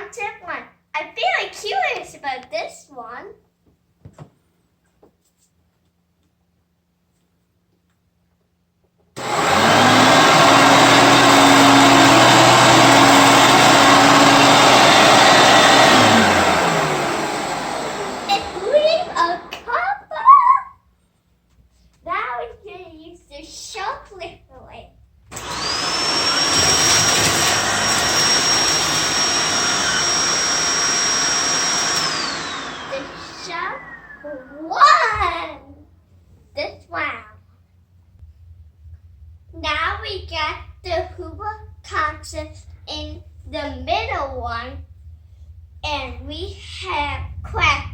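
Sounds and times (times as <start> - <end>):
vacuum cleaner motor whining: 9.2 - 19.7, 25.3 - 34.7.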